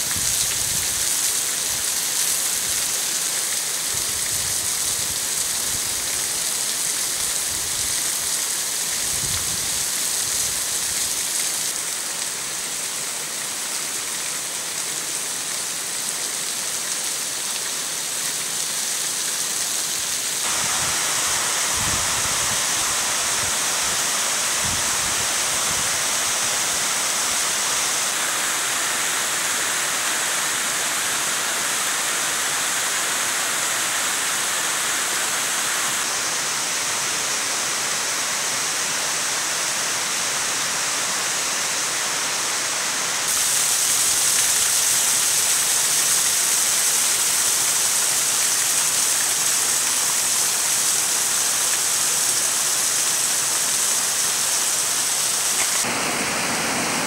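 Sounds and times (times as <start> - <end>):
waterfall rushing: 17.2 - 57.0.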